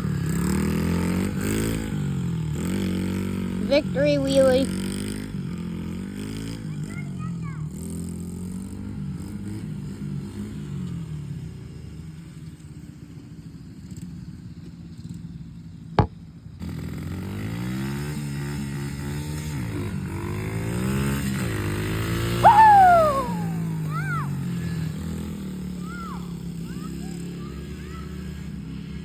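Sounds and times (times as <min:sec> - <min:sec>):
small motorbike engine revving: 0:00.0 - 0:29.0
high-pitched falling sound: 0:22.5 - 0:23.6.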